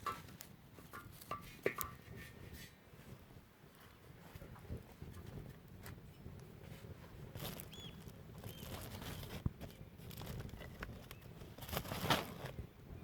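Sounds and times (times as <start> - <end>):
firewood clattering: 0.0 - 2.8.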